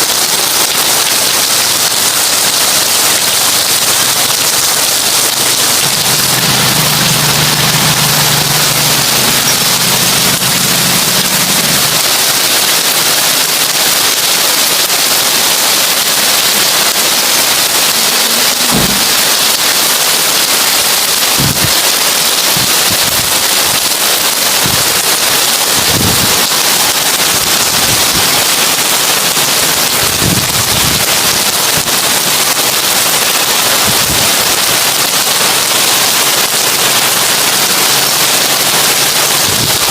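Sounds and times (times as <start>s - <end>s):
heavy rain on a tin roof: 0.0s - 39.9s
low thuds: 18.7s - 19.2s.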